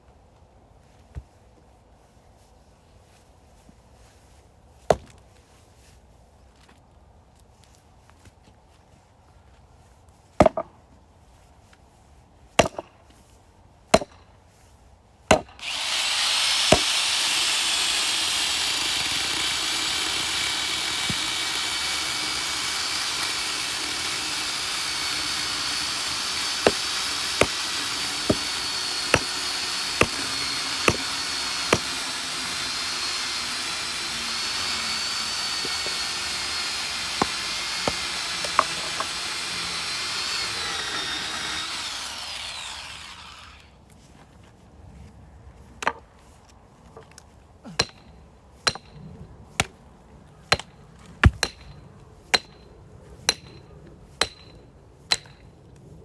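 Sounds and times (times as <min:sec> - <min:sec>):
axe chopping firewood: 0:04.9 - 0:05.2, 0:10.4 - 0:10.7, 0:12.6 - 0:12.9, 0:13.9 - 0:14.2, 0:15.3 - 0:43.2, 0:47.7 - 0:48.1, 0:48.7 - 0:49.0, 0:49.6 - 0:49.8, 0:50.5 - 0:52.6, 0:53.3 - 0:53.6, 0:54.2 - 0:55.4.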